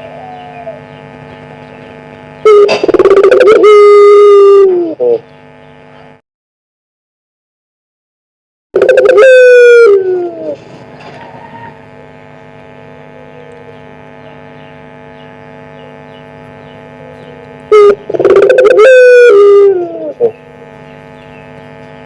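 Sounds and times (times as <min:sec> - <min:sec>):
dove cooing: 0:00.0 - 0:01.2, 0:02.4 - 0:05.3, 0:08.8 - 0:11.8, 0:13.0 - 0:13.9, 0:16.8 - 0:20.5
steady hum: 0:00.0 - 0:06.2, 0:08.8 - 0:22.0.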